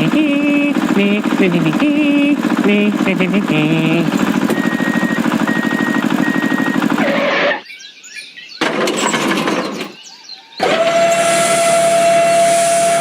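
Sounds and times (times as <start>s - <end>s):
small engine chugging: 0.0s - 7.6s, 10.6s - 13.0s
short high beeps: 4.5s - 6.9s.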